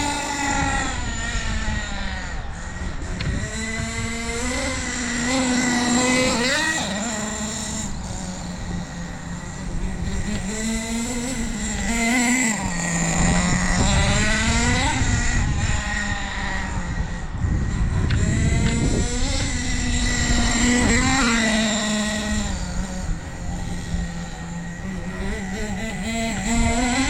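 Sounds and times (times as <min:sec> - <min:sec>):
rc truck nitro engine buzzing: 0:00.0 - 0:27.0.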